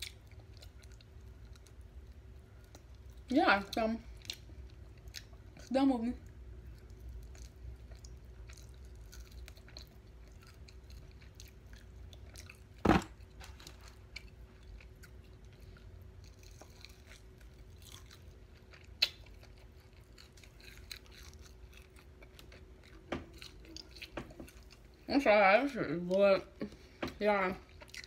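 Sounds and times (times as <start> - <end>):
faint steady hum: 0.0 - 28.0
chewing and biting: 6.6 - 25.0, 27.6 - 28.0.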